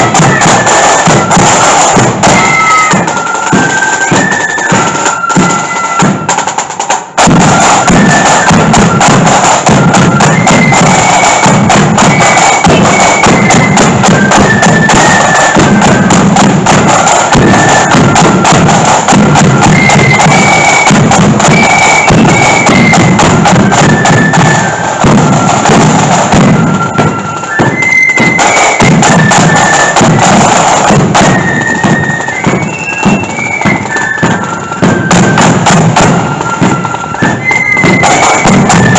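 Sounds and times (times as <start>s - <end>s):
massed flute melody: 0.0s - 38.9s
snare drums: 0.0s - 38.9s
bass drum: 25.0s - 26.8s.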